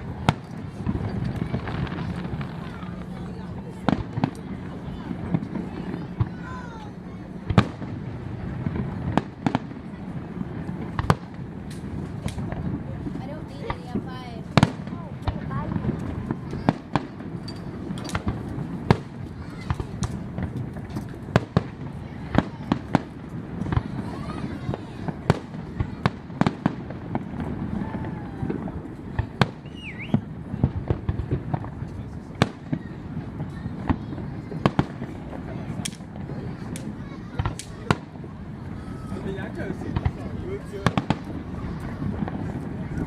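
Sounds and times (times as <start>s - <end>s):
fireworks bursting with sharp bangs: 0.0s - 43.0s
low background rumble: 0.0s - 43.0s
firework whistle: 29.4s - 30.3s.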